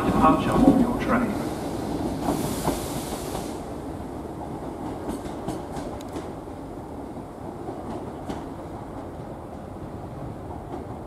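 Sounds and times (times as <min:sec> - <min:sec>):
hiss: 0:01.2 - 0:03.8
train wheels clicking over rail joints: 0:01.8 - 0:03.6, 0:04.4 - 0:06.4, 0:07.4 - 0:09.6.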